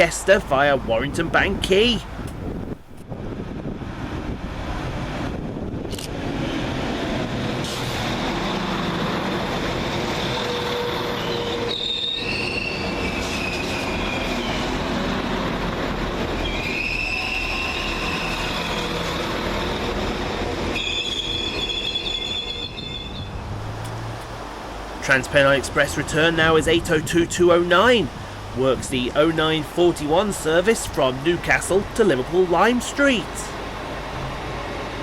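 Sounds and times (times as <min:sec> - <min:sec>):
train wheels rumbling on rail: 0:00.0 - 0:27.2, 0:29.6 - 0:35.0
wheel squeal: 0:10.4 - 0:14.8, 0:16.4 - 0:19.2, 0:20.7 - 0:23.4.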